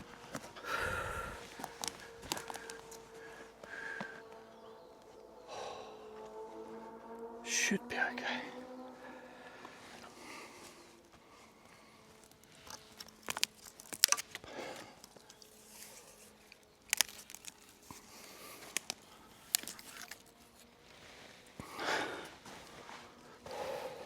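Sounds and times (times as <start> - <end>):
heavy breath: 0.0 - 4.4, 5.5 - 6.2, 21.6 - 24.0
cord clicks and crackles: 1.5 - 3.1, 12.2 - 15.5, 16.4 - 18.0, 18.6 - 20.4.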